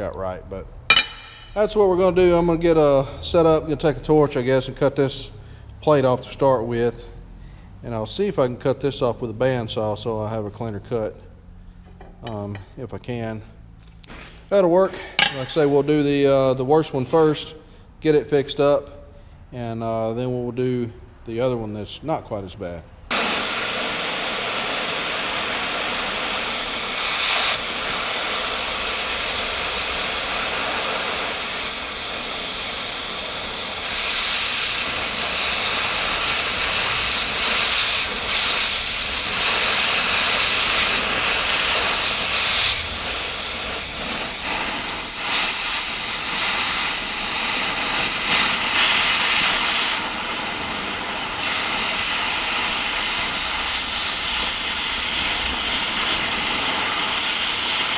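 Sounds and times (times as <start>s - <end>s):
cutting torch hissing: 23.1s - 57.9s.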